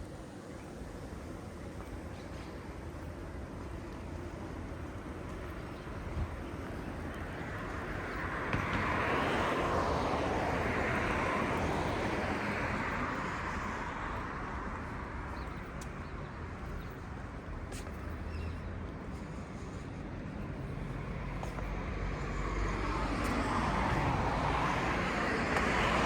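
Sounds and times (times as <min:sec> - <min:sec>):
low traffic rumble: 0:00.0 - 0:26.0
road vehicle passing: 0:06.3 - 0:26.0.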